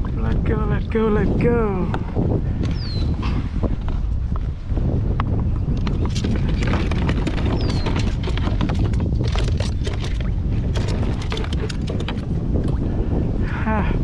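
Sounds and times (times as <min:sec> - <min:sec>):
wind buffeting microphone: 0:00.0 - 0:14.0
handling clicks and rattles: 0:05.8 - 0:12.8.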